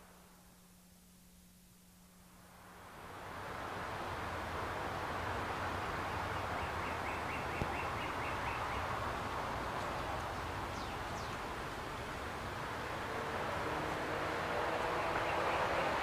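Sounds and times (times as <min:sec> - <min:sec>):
steady background hiss: 0:00.0 - 0:16.0
bird calling: 0:06.4 - 0:08.9.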